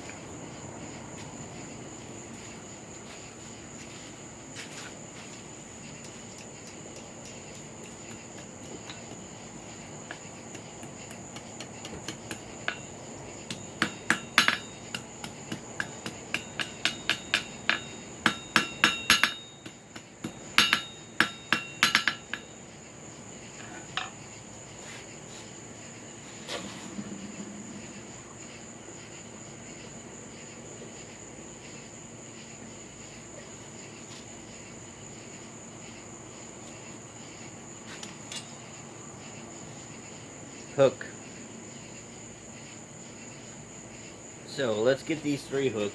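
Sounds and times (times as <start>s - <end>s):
crickets chirping: 0.0s - 45.9s
hammer striking metal on anvil: 10.8s - 22.6s.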